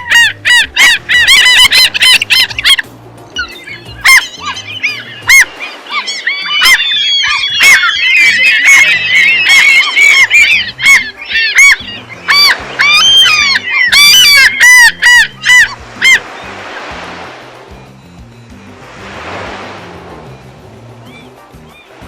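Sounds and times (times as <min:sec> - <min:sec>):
gulls calling: 0:00.0 - 0:22.0.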